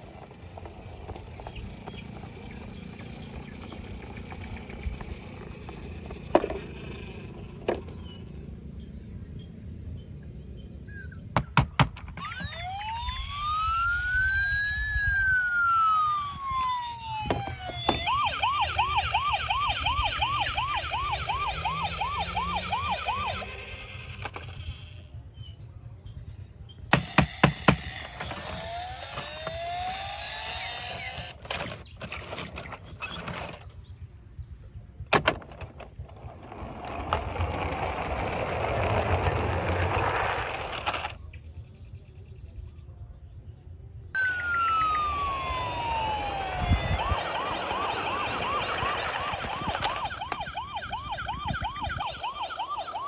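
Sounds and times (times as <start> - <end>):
toy siren wailing: 0.0 - 8.0, 12.1 - 24.2, 27.0 - 31.4, 36.2 - 40.8, 44.2 - 53.0
toy clicks: 27.0 - 31.4.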